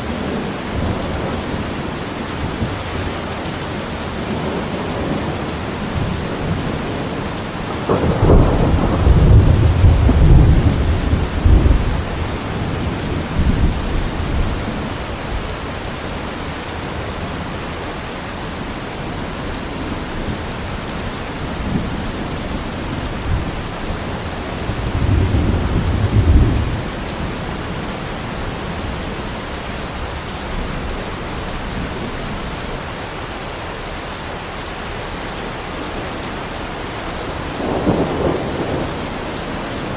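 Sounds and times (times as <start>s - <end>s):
heavy rain: 0.0s - 39.9s
thunder rumbling: 4.1s - 15.5s, 19.2s - 29.2s, 37.1s - 39.9s.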